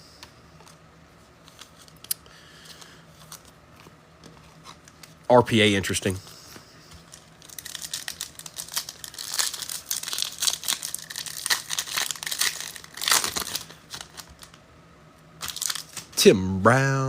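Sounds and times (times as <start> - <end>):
foil wrapper crinkling and tearing: 7.0 - 14.6, 15.4 - 16.2.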